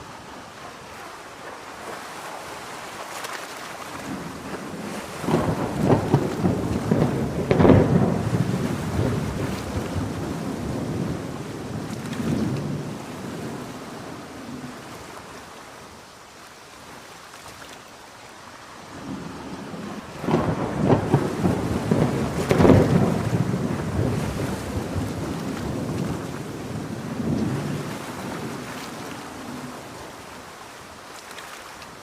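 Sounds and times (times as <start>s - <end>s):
steady rain: 0.0s - 32.0s
crackling thunderclap: 4.0s - 14.7s, 19.0s - 30.2s
thunder rumbling: 4.0s - 14.8s, 19.0s - 30.3s.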